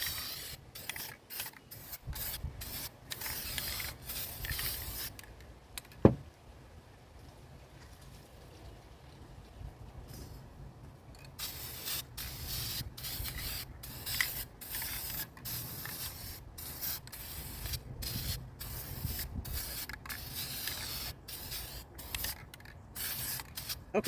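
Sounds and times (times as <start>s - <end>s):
spray paint can hissing: 0.0s - 5.3s, 11.4s - 24.0s.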